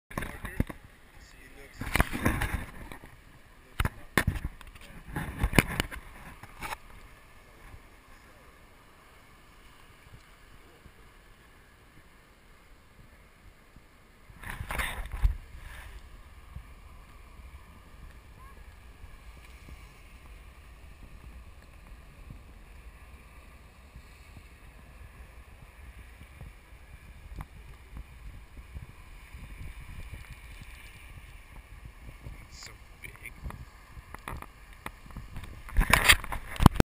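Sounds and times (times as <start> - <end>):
wind buffeting microphone: 14.2 - 36.8
low rushing hiss: 15.0 - 35.8.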